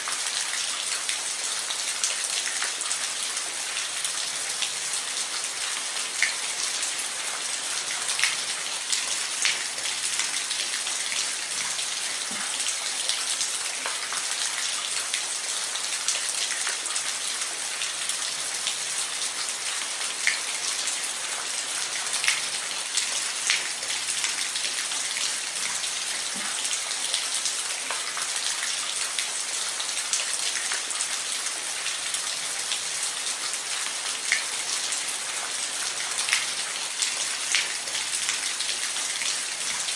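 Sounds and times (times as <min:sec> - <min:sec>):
rain falling on a roof: 0:00.0 - 0:39.9.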